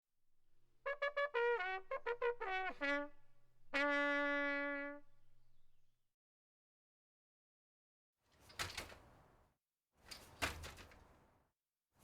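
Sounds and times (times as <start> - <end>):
trumpet tune: 0.8 - 5.7.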